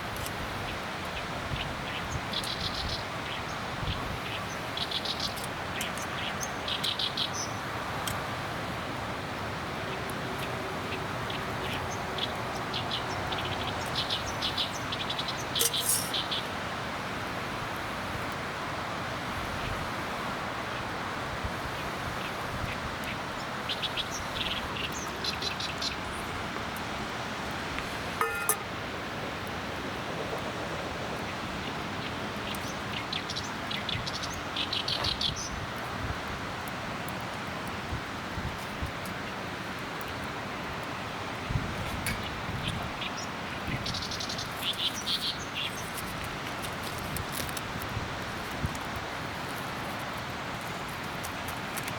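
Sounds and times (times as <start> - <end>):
steady rushing outdoor background: 0.0 - 51.9
small birds chirping: 1.1 - 7.7, 10.0 - 16.6, 40.8 - 47.5
birds chirping: 10.9 - 16.5, 28.2 - 28.7.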